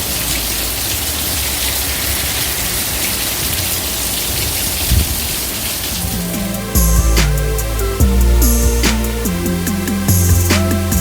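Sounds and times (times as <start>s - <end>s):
rain falling on a car: 0.0s - 6.8s.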